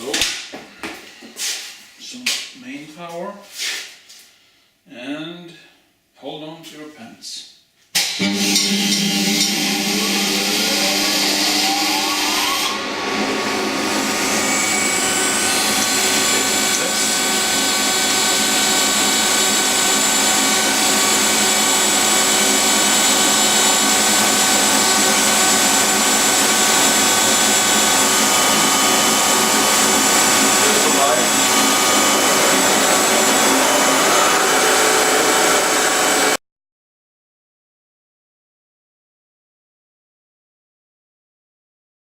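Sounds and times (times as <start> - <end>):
metal lathe motor whine: 8.2 - 36.4.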